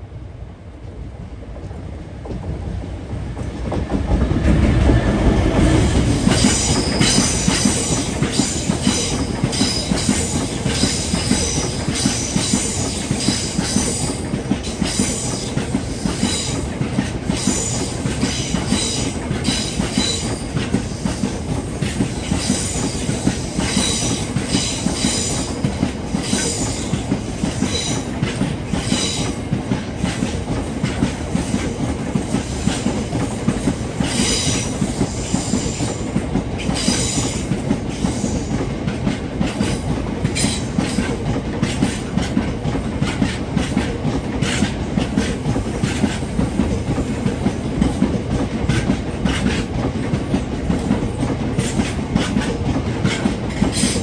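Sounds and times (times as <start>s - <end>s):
freight train wheels rumbling: 0.0s - 54.0s
clatter over rail joints: 38.5s - 54.0s.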